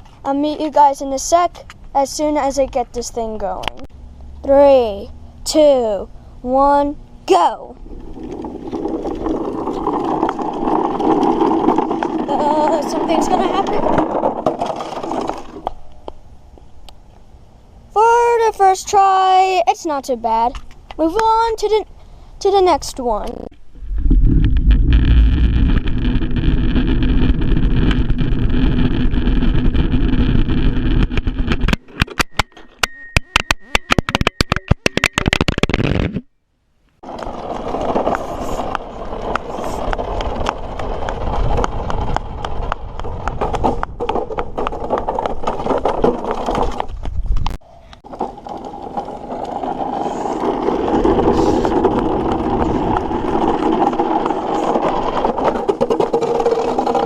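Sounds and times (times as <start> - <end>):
toy truck wheels rumbling: 6.7 - 16.1, 22.4 - 36.0, 37.0 - 57.0
toy truck crashing and tumbling: 7.8 - 15.8, 37.0 - 47.1, 48.1 - 57.0.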